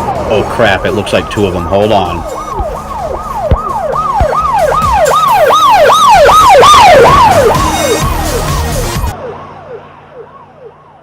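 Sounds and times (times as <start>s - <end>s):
emergency vehicle siren yelping: 0.0s - 11.0s.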